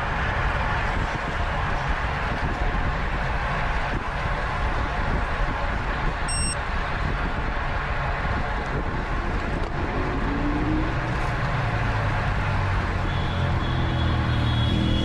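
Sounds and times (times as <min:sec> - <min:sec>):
wind buffeting microphone: 0:00.0 - 0:11.2
short high beep: 0:06.3 - 0:06.6.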